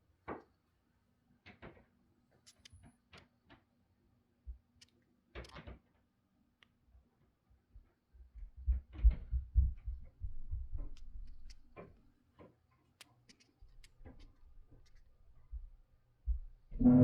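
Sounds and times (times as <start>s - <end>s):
low thuds and knocks: 8.6s - 11.2s.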